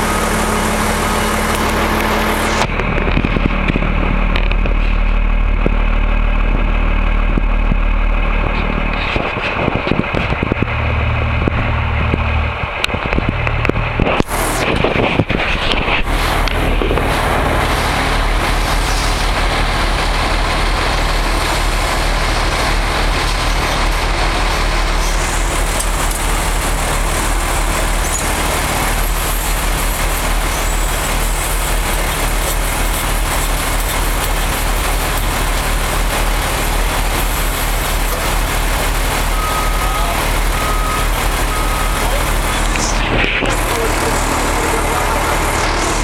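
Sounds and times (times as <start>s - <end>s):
reverse alarm beeping: 0.0s - 0.8s, 39.1s - 42.8s
heavy diesel engines running: 0.0s - 46.0s.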